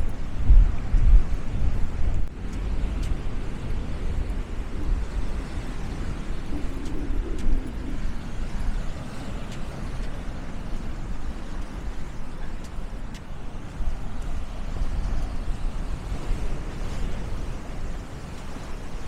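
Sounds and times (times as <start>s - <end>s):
faint clicks: 2.1s - 4.4s, 6.3s - 8.4s, 9.2s - 15.6s.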